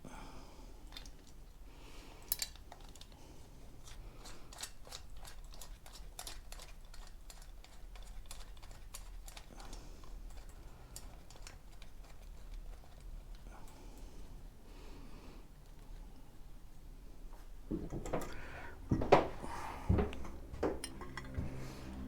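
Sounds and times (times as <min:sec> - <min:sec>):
small parts clicking: 0:02.2 - 0:03.2.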